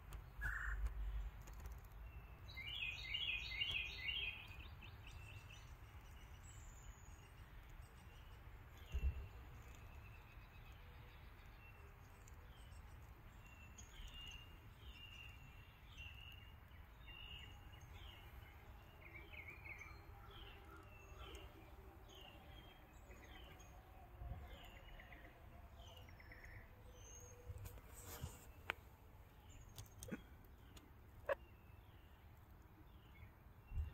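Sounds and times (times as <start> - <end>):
bird chirping: 0.0 - 33.9.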